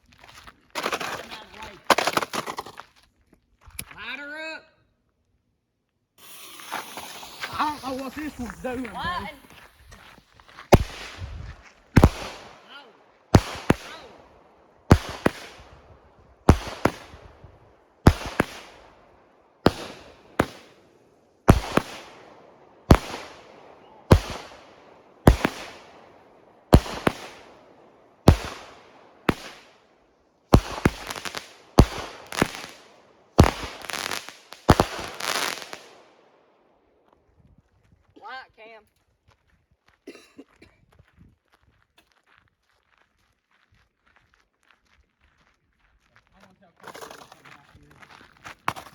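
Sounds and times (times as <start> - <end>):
firework bangs and crackling: 6.2 - 29.8, 30.5 - 36.2.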